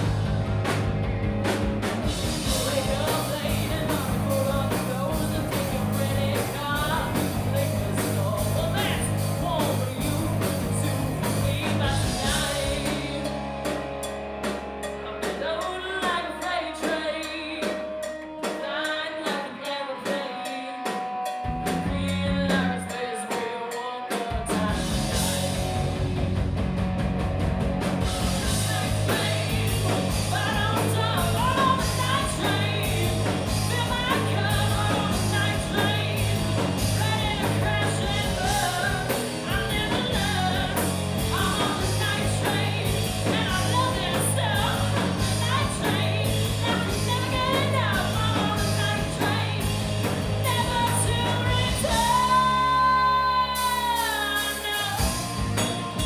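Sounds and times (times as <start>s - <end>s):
drum kit: 0.0s - 56.0s
live rock band playing: 0.0s - 56.0s
person singing: 2.4s - 13.8s, 15.0s - 25.9s, 28.2s - 49.8s, 50.4s - 56.0s.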